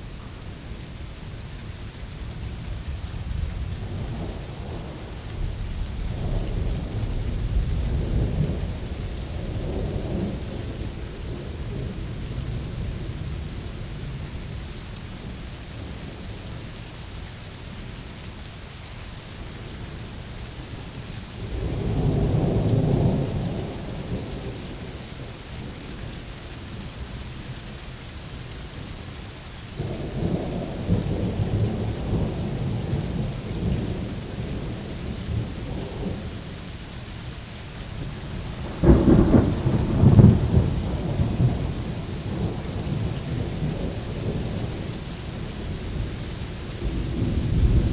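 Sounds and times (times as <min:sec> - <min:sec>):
steady rain: 0:00.0 - 0:47.9
rolling thunder: 0:38.0 - 0:47.9.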